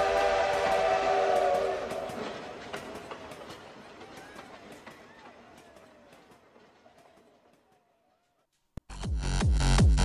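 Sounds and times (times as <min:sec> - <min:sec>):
train whistle echo: 0:00.0 - 0:02.3
train rail clatter: 0:00.0 - 0:08.5.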